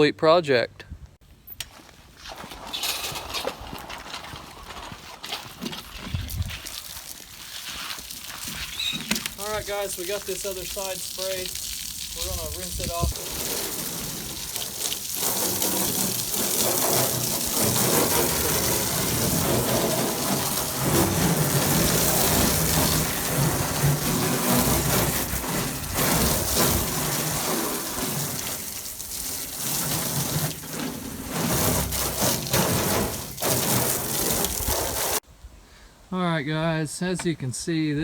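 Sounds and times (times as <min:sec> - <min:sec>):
water spray hissing on boat hull: 0:06.8 - 0:35.2.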